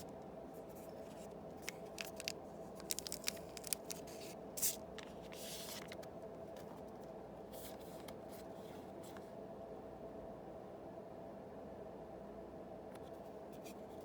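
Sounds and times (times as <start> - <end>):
steady low hum: 0.0 - 14.0
trading cards clicking: 1.6 - 4.1.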